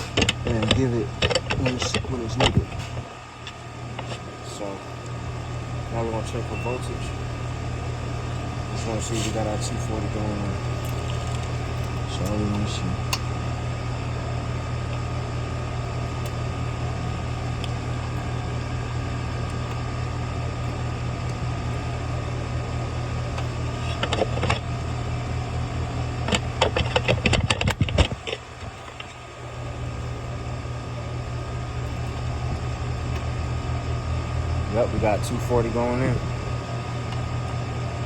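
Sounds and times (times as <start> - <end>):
sharp clicks and rattles: 0.0 - 4.2, 8.3 - 13.6, 14.8 - 25.2, 25.8 - 29.3
low mechanical hum: 0.0 - 38.0.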